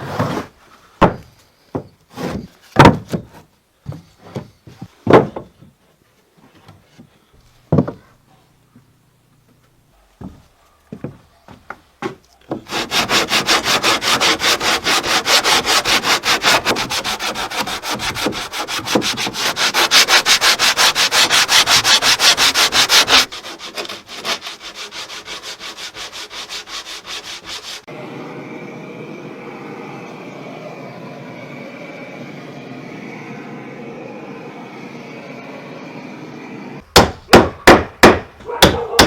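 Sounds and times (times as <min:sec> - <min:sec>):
hand tool rasping wood: 0:12.5 - 0:27.9.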